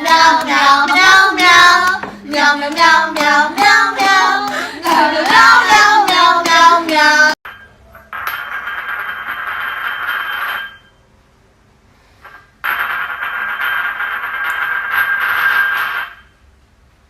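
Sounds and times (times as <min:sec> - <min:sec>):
high voice singing: 0:00.0 - 0:07.4.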